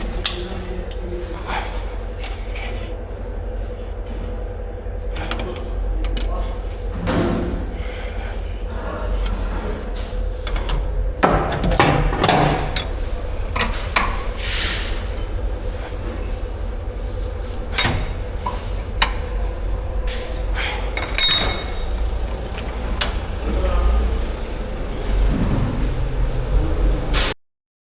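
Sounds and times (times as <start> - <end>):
steady low hum: 0.0 - 27.3
metallic tool clinks and knocks: 21.0 - 21.9.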